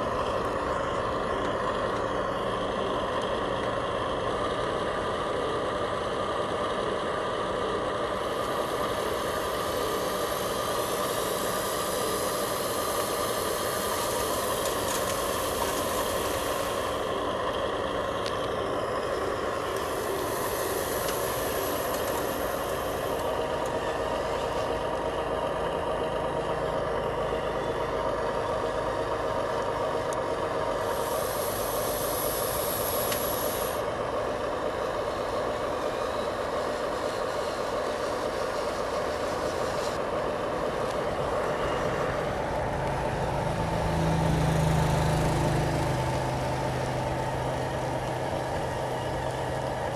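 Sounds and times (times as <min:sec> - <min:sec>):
high hiss: 0:08.2 - 0:17.2, 0:19.6 - 0:23.3, 0:30.8 - 0:33.9
toy motor and gears whining: 0:08.5 - 0:17.1, 0:30.9 - 0:33.8.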